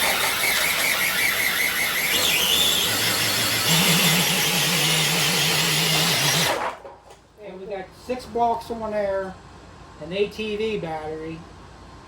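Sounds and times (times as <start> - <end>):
toy truck motor whining: 0.0 - 6.8.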